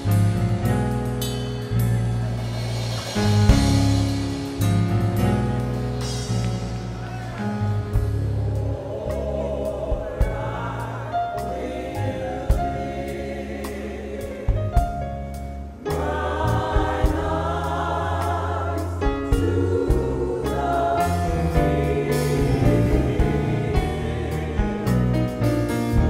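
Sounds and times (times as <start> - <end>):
band playing: 0.0 - 26.0
deep bass notes: 0.0 - 26.0
gospel choir singing: 1.7 - 26.0
drum hits: 1.9 - 7.0, 16.0 - 24.8.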